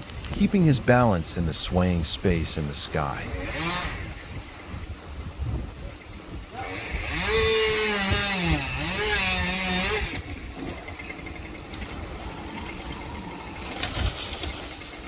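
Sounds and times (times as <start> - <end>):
chainsaw engine revving: 3.2 - 4.2, 6.6 - 15.0.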